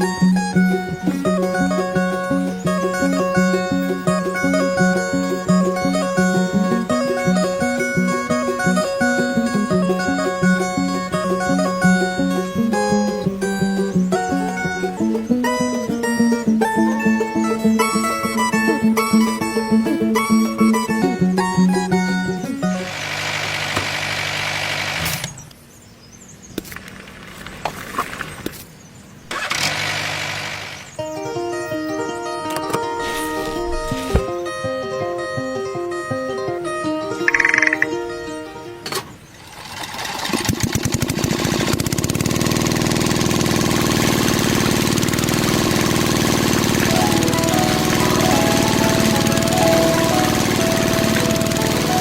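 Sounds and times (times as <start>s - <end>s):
small engine starting: 0.0s - 25.5s, 29.3s - 31.2s, 38.9s - 52.0s
small tractor motor running: 0.0s - 25.5s, 29.3s - 31.2s, 38.9s - 52.0s
ticks and clicks: 37.3s - 37.9s.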